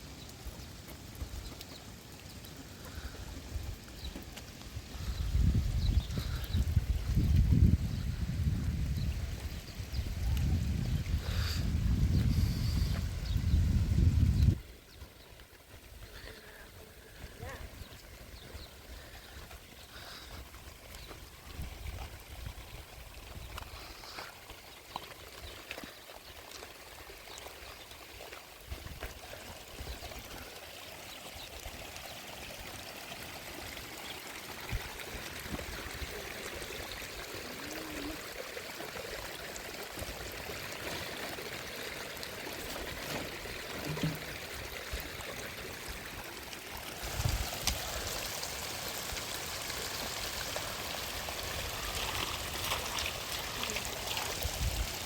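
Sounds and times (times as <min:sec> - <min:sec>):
stream rushing: 0:25.9 - 0:55.0.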